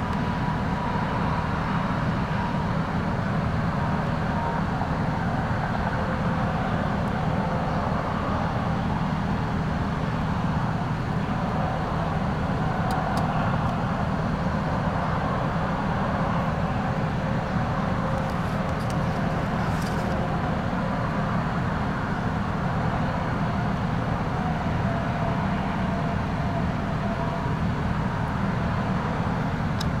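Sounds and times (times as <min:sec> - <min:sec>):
low rumble of vehicle noise: 0:00.0 - 0:30.0.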